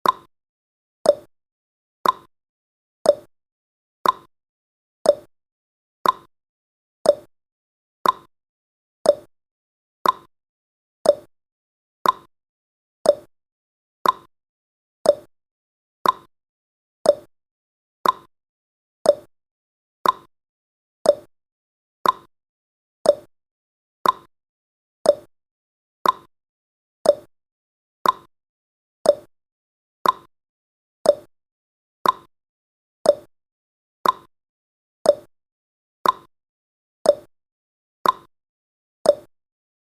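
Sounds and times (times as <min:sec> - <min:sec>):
timer ticking: 0:00.0 - 0:00.3, 0:01.1 - 0:01.3, 0:02.0 - 0:02.3, 0:03.1 - 0:03.3, 0:04.0 - 0:04.3, 0:05.1 - 0:05.3, 0:06.0 - 0:06.3, 0:07.1 - 0:07.3, 0:08.0 - 0:08.3, 0:09.0 - 0:09.3, 0:10.0 - 0:10.3, 0:11.0 - 0:11.3, 0:12.0 - 0:12.3, 0:13.0 - 0:13.3, 0:14.0 - 0:14.3, 0:15.0 - 0:15.3, 0:16.0 - 0:16.3, 0:17.0 - 0:17.3, 0:18.0 - 0:18.3, 0:19.0 - 0:19.3, 0:20.0 - 0:20.3, 0:21.0 - 0:21.3, 0:22.0 - 0:22.3, 0:23.0 - 0:23.3, 0:24.0 - 0:24.3, 0:25.0 - 0:25.3, 0:26.0 - 0:26.3, 0:27.0 - 0:27.3, 0:28.0 - 0:28.3, 0:29.0 - 0:29.3, 0:30.0 - 0:30.3, 0:31.0 - 0:31.3, 0:32.0 - 0:32.3, 0:33.0 - 0:33.3, 0:34.0 - 0:34.3, 0:35.1 - 0:35.3, 0:36.0 - 0:36.3, 0:37.1 - 0:37.3, 0:38.0 - 0:38.3, 0:39.1 - 0:39.3.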